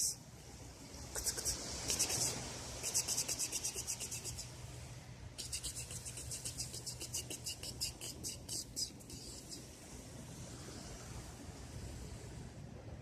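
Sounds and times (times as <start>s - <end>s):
insect chirping: 1.2s - 4.5s, 5.4s - 9.8s
low background rumble: 3.5s - 13.0s.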